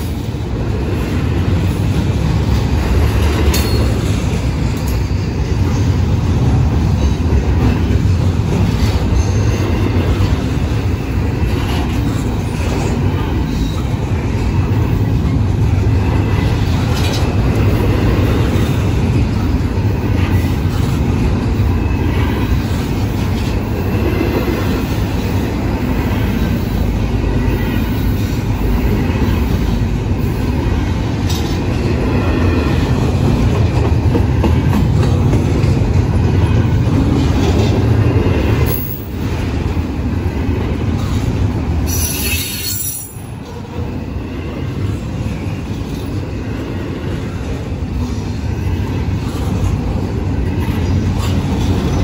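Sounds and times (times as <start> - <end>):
freight train rumbling past: 0.0 - 52.0
high wheel squeal: 41.9 - 43.3.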